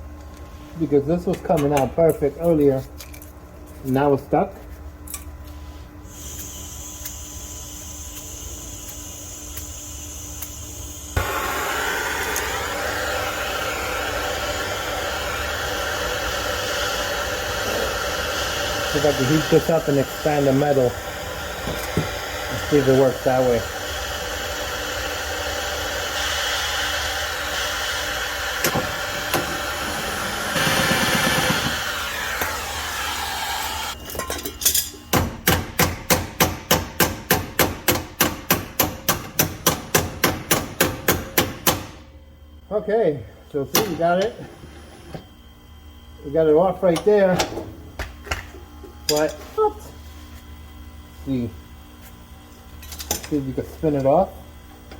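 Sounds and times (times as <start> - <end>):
gas torch hissing: 6.0 - 34.0
gas torch lighting: 6.1 - 34.0.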